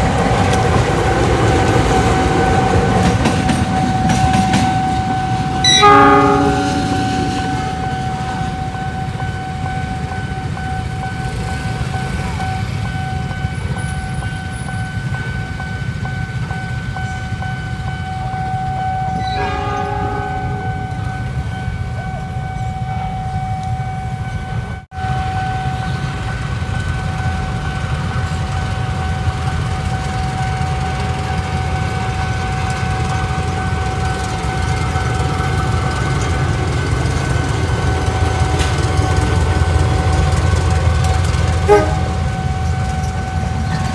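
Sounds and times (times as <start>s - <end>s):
crossing signal warning tone: 0.0s - 43.9s
train rumbling past: 0.0s - 43.9s
train horn blast: 3.0s - 9.8s, 19.2s - 21.5s, 41.5s - 42.5s.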